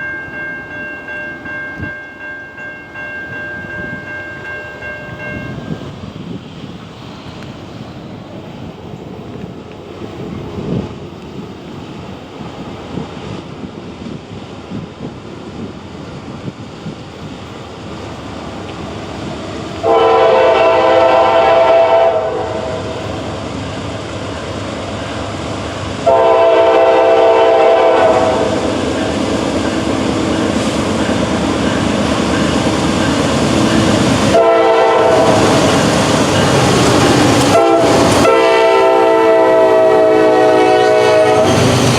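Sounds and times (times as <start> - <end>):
freight train rumbling: 0.0 - 41.9
locomotive air horn blasts: 19.8 - 23.2, 26.0 - 28.8, 34.3 - 35.7, 37.4 - 41.6.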